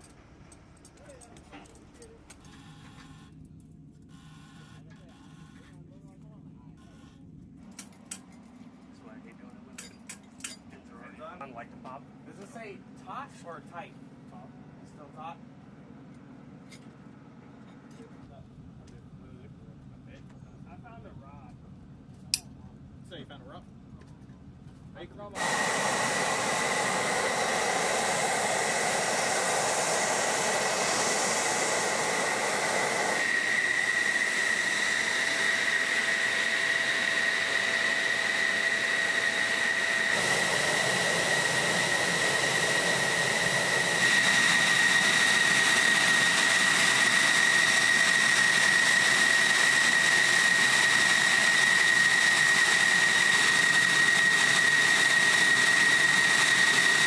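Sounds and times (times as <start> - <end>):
jet engine whine and roar: 25.2 - 57.0.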